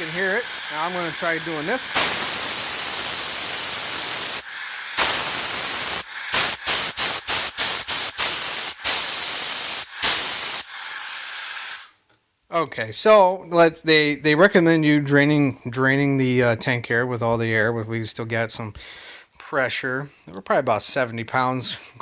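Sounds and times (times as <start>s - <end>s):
compressed air hissing from valve: 0.0s - 12.0s.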